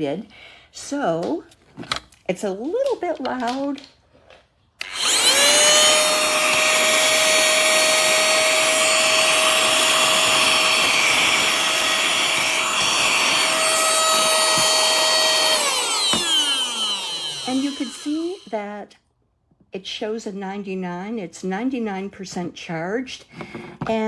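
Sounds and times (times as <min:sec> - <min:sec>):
handheld vacuum motor whining: 0:04.8 - 0:18.6.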